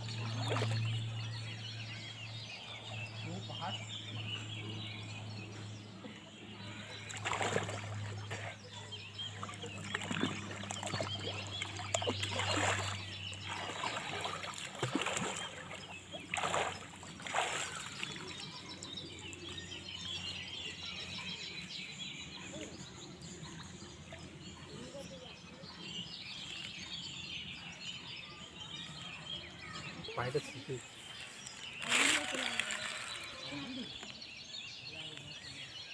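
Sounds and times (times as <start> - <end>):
water splashing in pond: 0.0 - 1.3, 6.8 - 19.5
birds chirping: 0.0 - 35.9.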